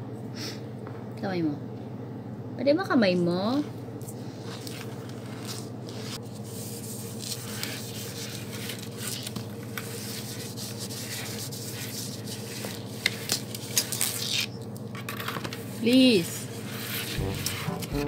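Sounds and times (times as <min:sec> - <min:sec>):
low hum: 0:17.1 - 0:18.0.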